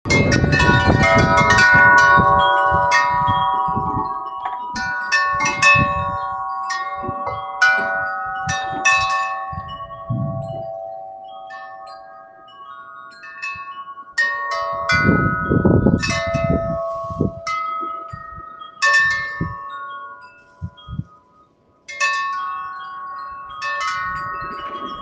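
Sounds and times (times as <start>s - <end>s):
wind rumbling on microphone: 0.1s - 12.0s, 14.5s - 21.2s, 22.8s - 25.0s
wind chimes ringing: 0.1s - 25.0s.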